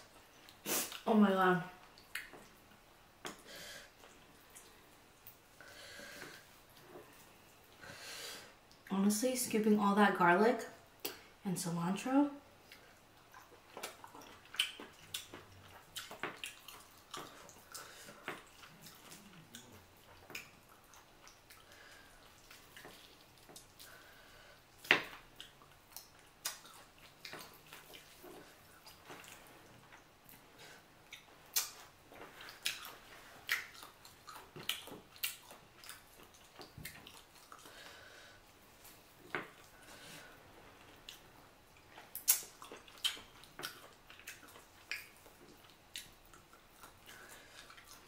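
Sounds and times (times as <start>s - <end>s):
lip smacks and mouth clicks: 1.8s - 3.4s, 12.6s - 24.0s, 24.8s - 30.4s, 31.0s - 37.8s, 40.8s - 48.0s
wet chewing: 12.6s - 48.0s.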